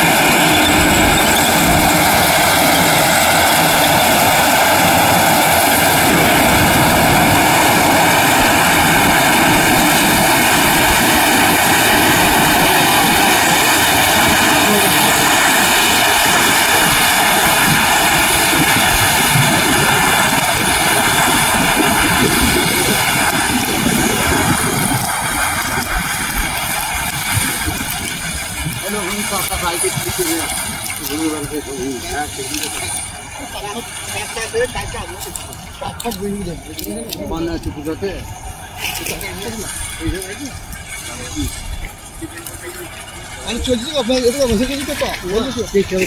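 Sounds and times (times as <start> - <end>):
combine harvester running: 0.0 - 46.0.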